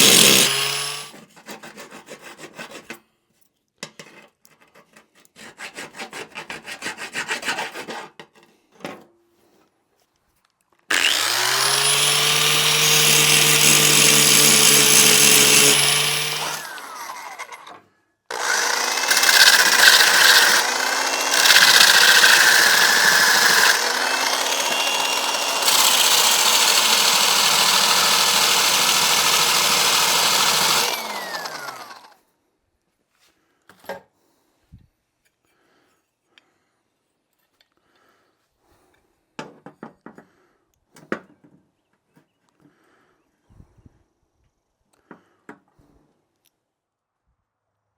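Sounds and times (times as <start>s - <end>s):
grinder grinding metal: 0.0s - 1.1s, 10.9s - 17.7s, 18.3s - 32.1s.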